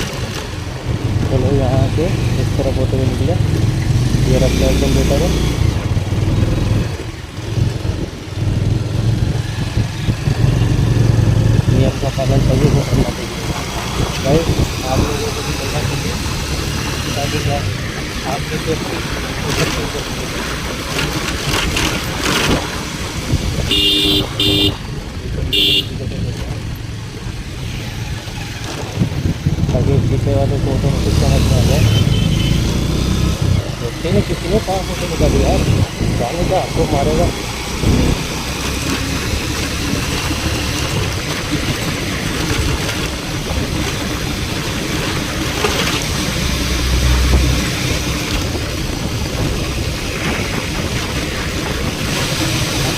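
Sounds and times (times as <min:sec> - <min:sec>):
road and wind noise: 0:00.0 - 0:52.9
vehicle horn blasts: 0:23.7 - 0:24.8, 0:25.5 - 0:26.0, 0:31.8 - 0:32.7.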